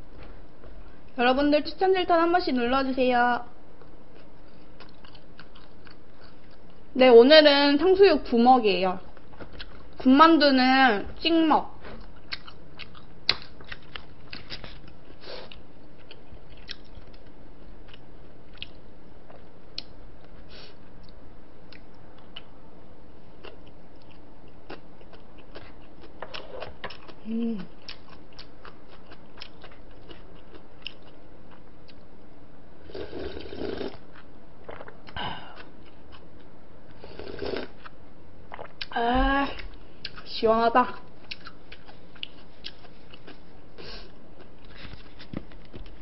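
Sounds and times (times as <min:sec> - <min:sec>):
person chewing: 0:03.8 - 0:06.8, 0:09.1 - 0:10.0, 0:11.9 - 0:22.6, 0:23.4 - 0:32.1, 0:32.9 - 0:38.9, 0:39.6 - 0:40.3, 0:41.2 - 0:46.0.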